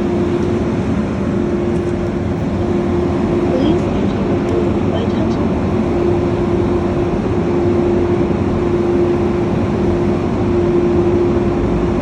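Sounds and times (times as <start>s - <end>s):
machine humming drone: 0.0s - 12.0s.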